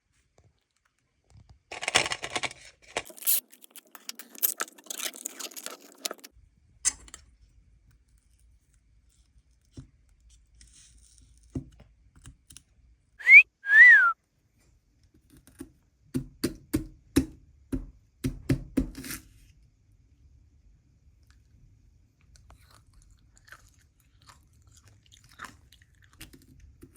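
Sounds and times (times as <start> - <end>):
scraping crunching noises: 1.7 - 6.3
whistled notes: 13.2 - 14.2.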